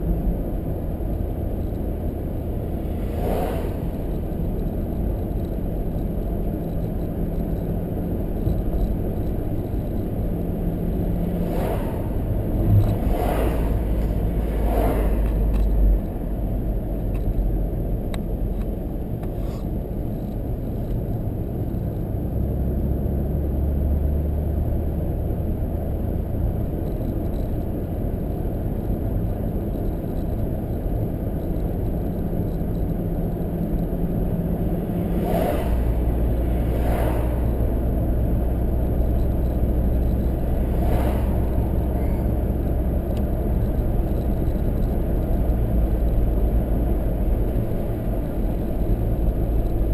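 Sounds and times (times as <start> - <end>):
car engine and tyre rumble: 0.0 - 49.9.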